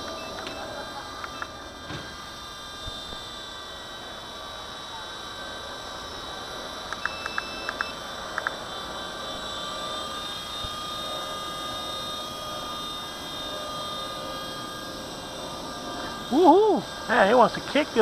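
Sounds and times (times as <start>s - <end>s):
rc helicopter rotor whine: 0.0s - 18.0s
short beeps: 6.9s - 8.0s.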